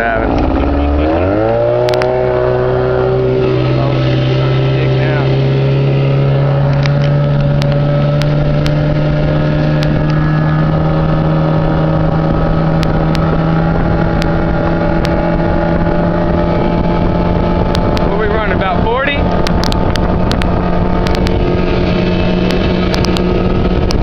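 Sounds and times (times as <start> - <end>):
motorboat engine running hard: 0.0 - 24.0
rush of noise: 0.0 - 24.0
sharp ticks: 19.4 - 21.4.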